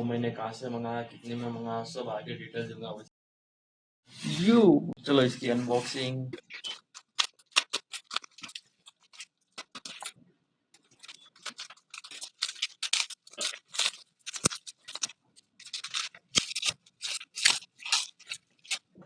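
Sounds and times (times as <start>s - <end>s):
packaging crinkling and tearing: 6.5s - 10.2s, 10.8s - 19.0s.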